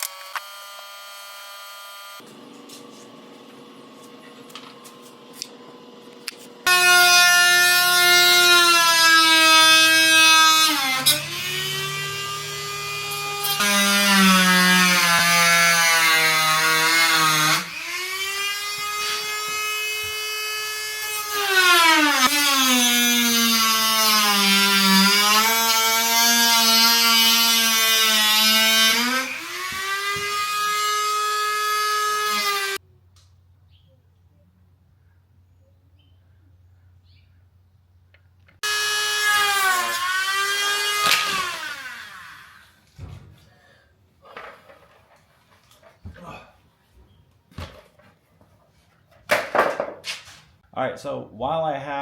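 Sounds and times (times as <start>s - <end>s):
power tool cutting steel: 0.0s - 2.3s, 6.6s - 32.8s, 38.6s - 42.8s.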